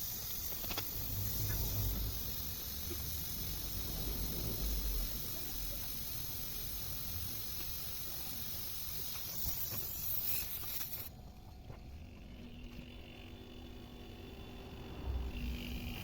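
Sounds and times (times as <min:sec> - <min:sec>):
pressurised gas hissing through tube: 0:00.0 - 0:11.1.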